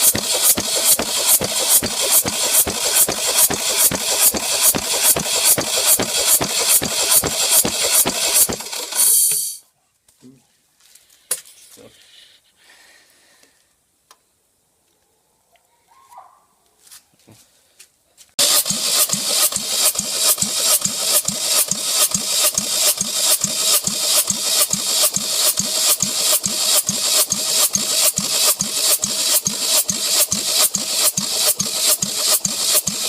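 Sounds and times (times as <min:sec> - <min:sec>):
petrol engine running: 0:00.0 - 0:09.4, 0:18.4 - 0:33.0.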